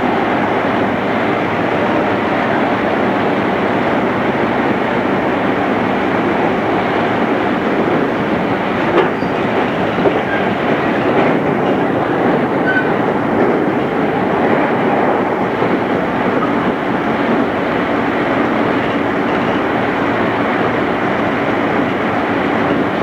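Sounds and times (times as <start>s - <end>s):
train wheels rumbling on rails: 0.0s - 23.0s
clicks over rail joints: 5.2s - 23.0s.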